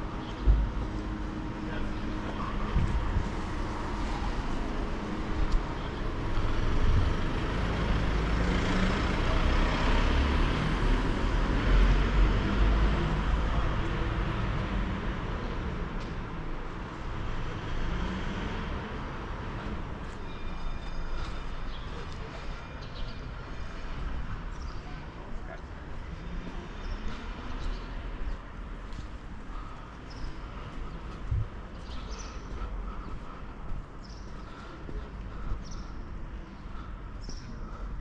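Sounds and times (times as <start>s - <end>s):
motor vehicle passing by: 0.0s - 16.4s, 17.0s - 20.0s.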